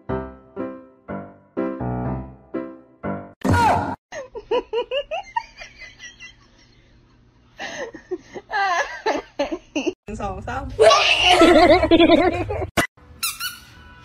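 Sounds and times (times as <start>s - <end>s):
person laughing: 4.1s - 6.8s, 11.2s - 12.7s.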